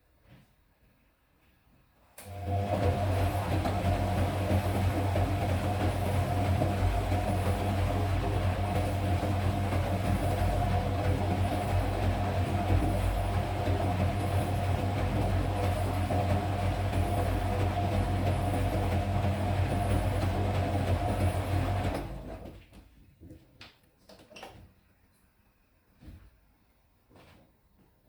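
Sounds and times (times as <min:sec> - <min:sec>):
washing machine spinning: 0:02.2 - 0:22.8.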